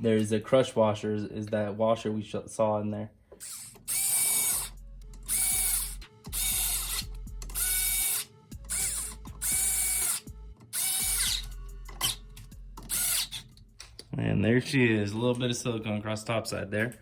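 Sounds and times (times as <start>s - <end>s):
cordless power ratchet bursts: 3.4s - 12.2s, 12.9s - 13.5s.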